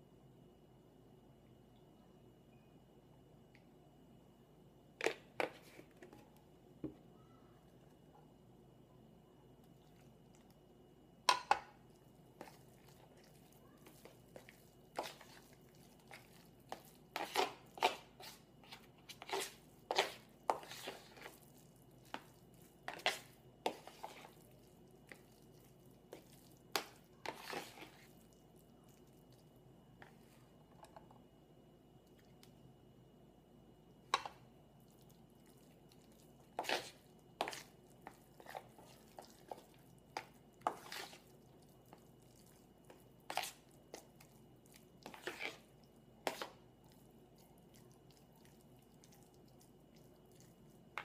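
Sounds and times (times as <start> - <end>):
spoon knocking and scraping bowl: 11.3 - 11.8
wet squishing: 11.8 - 29.5, 34.8 - 51.0.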